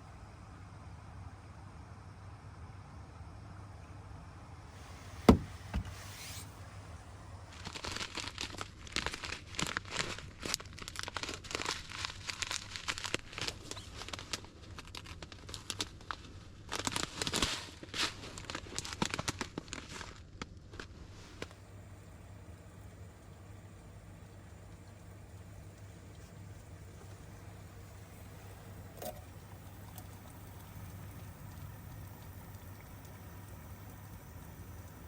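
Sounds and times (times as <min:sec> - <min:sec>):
sharp knock: 0:05.3 - 0:06.4
crinkling and rustling material: 0:07.4 - 0:21.6.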